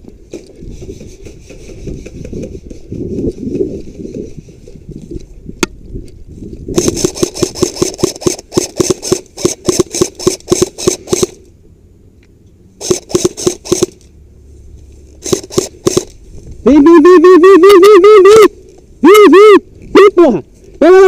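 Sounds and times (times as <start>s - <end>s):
airsoft gun rapid shots: 6.7s - 11.4s, 12.8s - 14.0s, 15.2s - 16.1s.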